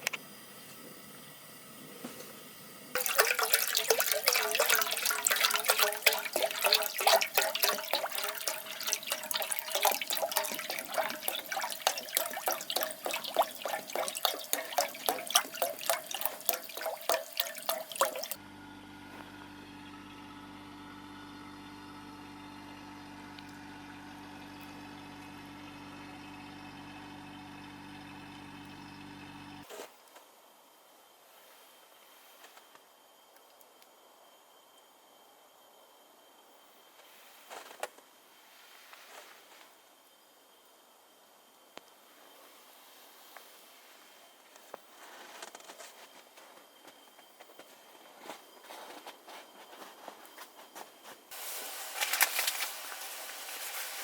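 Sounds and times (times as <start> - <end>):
water pouring into pot: 3.0 - 18.4, 51.3 - 54.0.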